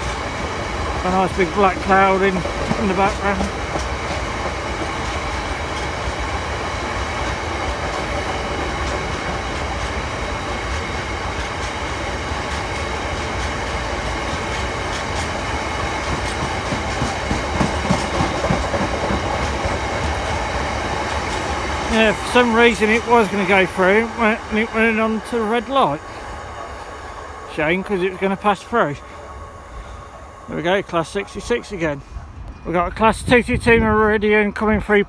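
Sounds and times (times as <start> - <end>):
wheels clacking over rail joints: 0.0 - 33.5
freight train rumbling past: 0.0 - 35.0.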